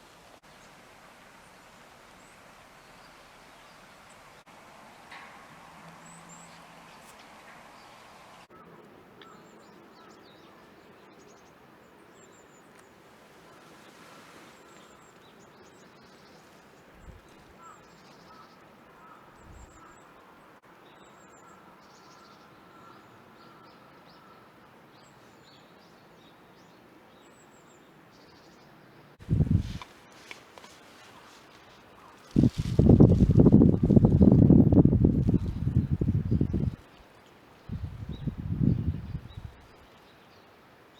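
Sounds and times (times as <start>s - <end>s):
outdoor background hiss: 0.0s - 40.9s
small birds chirping: 25.0s - 40.5s.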